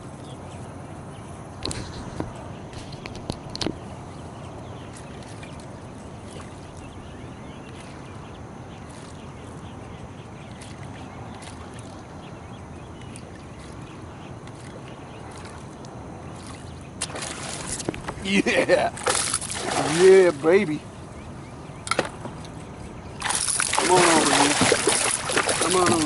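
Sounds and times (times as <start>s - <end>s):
steady low hiss: 17.4s - 23.9s.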